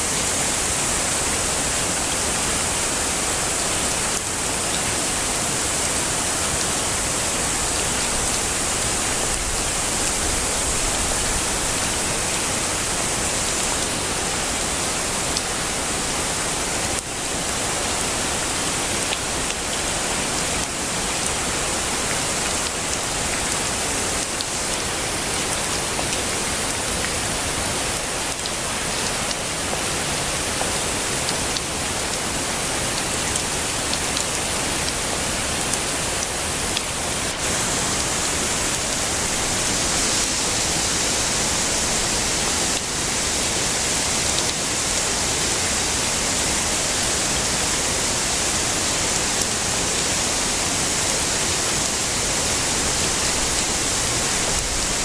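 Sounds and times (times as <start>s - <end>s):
heavy rain hissing: 0.0s - 55.0s
bright high hiss: 13.4s - 15.0s.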